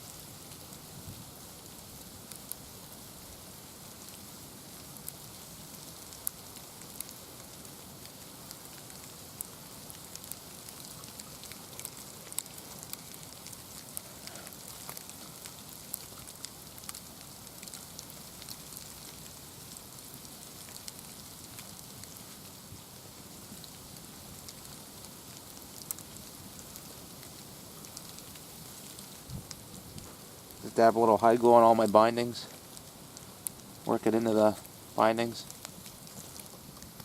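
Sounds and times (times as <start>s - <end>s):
steady rain: 0.0s - 37.0s
single raindrops ticking: 31.7s - 37.0s.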